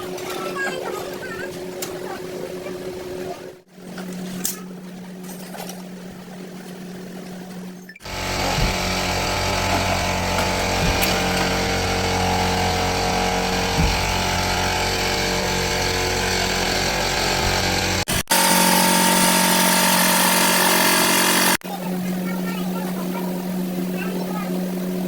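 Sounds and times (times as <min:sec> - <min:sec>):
power tool on car body metal: 0:08.0 - 0:21.6
knocks: 0:08.4 - 0:11.8, 0:13.6 - 0:14.5.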